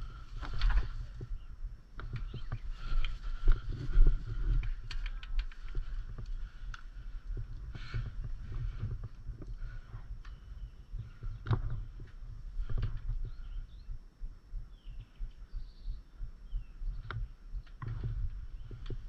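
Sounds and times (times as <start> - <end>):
faint bird chirps: 0.0 - 5.2, 9.6 - 12.0, 12.6 - 19.0.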